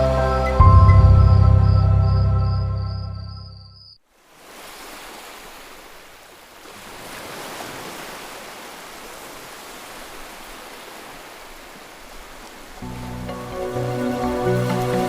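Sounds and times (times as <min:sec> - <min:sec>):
sea surf breaking: 0:04.3 - 0:15.0.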